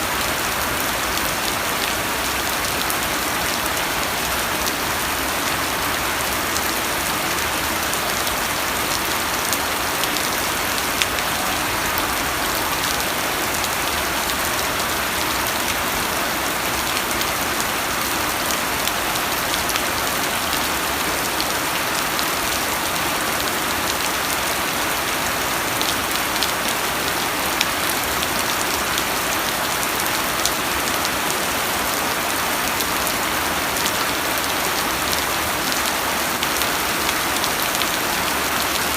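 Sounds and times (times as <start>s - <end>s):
rain pattering on surfaces: 0.0s - 38.9s
loud individual raindrops: 0.1s - 22.8s.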